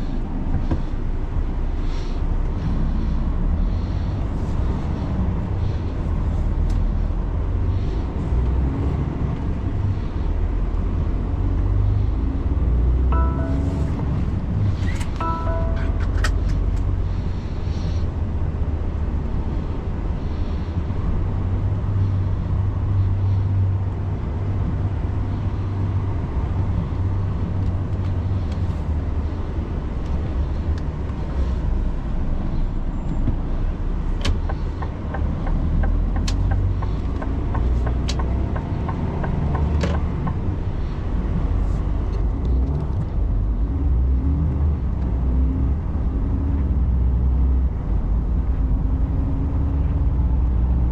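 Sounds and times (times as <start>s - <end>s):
truck engine and road drone: 0.0s - 50.9s
sharp clicks and knocks: 34.2s - 40.5s.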